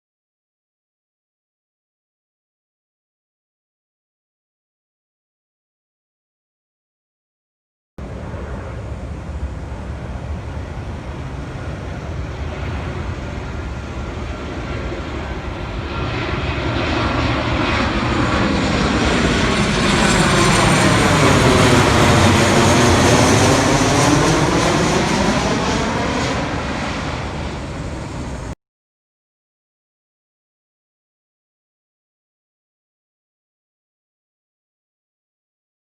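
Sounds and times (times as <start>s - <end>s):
jet plane flying over: 8.0s - 28.6s.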